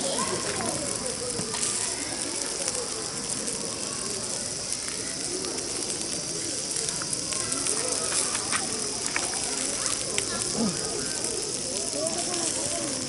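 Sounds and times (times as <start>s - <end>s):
distant voices: 0.0s - 13.0s
steady high hiss: 0.0s - 13.0s
faint clicks: 0.3s - 13.0s.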